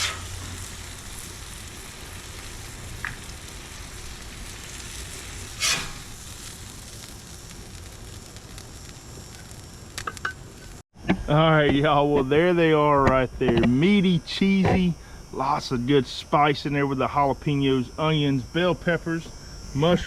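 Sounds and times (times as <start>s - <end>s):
spatula scraping griddle: 0.0s - 1.3s, 4.4s - 7.1s
food sizzling on a griddle: 0.0s - 10.8s.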